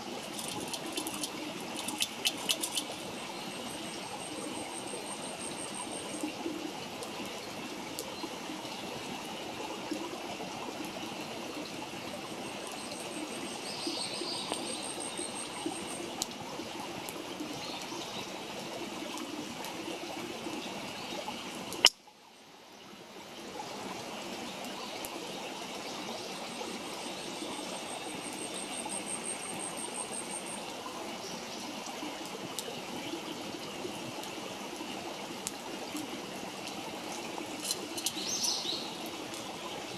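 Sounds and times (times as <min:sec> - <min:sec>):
campfire crackling and popping: 0:00.1 - 0:03.2.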